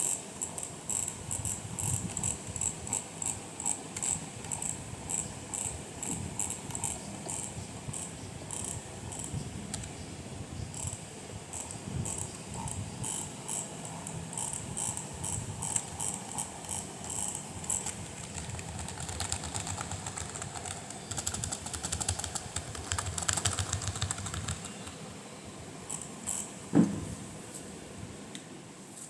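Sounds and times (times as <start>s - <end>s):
sharp mechanical clicks: 0.0s - 10.0s, 10.8s - 25.0s, 25.9s - 26.5s
louder knock: 26.8s - 27.2s.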